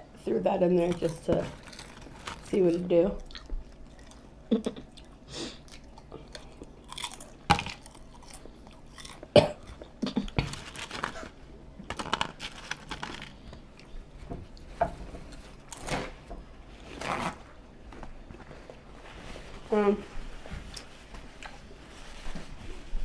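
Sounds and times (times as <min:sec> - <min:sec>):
chewing and crunching snacks: 0:00.8 - 0:14.0.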